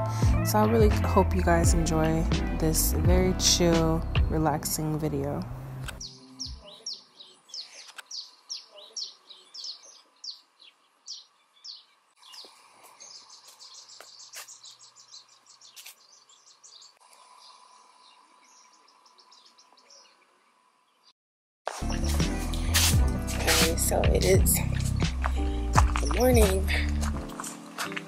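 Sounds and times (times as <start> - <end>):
bird chirping and trilling: 6.0 - 20.3.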